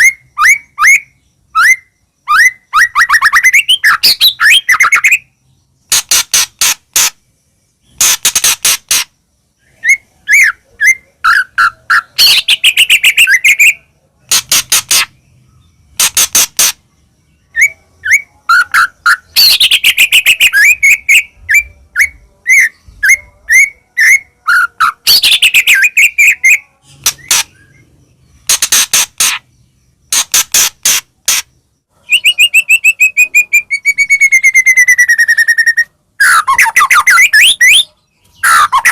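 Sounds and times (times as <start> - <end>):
bird singing: 0.0 - 38.9.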